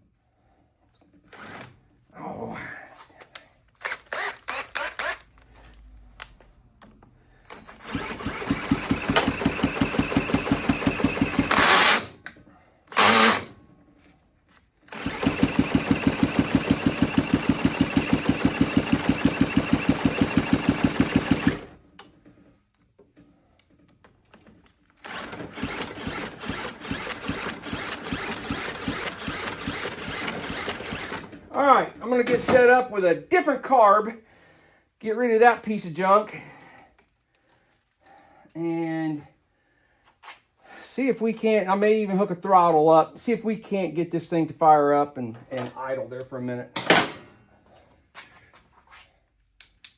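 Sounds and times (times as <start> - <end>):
engine cranked by electric drill: 1.3 - 1.8, 3.8 - 5.4, 7.5 - 12.2, 12.9 - 13.6, 14.9 - 21.8, 25.0 - 31.4.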